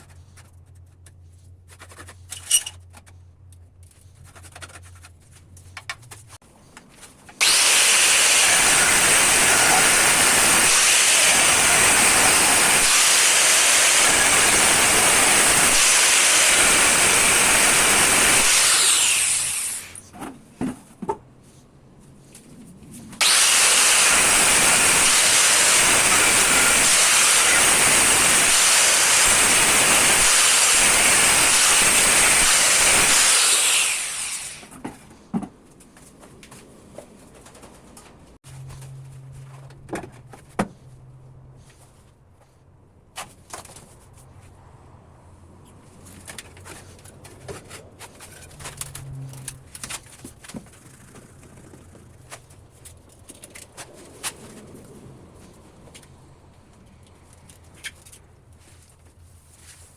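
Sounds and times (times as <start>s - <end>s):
power tool motor whining: 7.4s - 20.0s, 23.2s - 34.7s.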